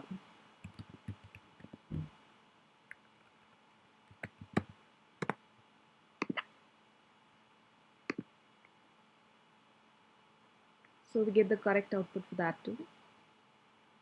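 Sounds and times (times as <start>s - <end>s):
keyboard and mouse clicks: 0.6s - 1.8s, 4.1s - 5.4s, 6.2s - 6.5s.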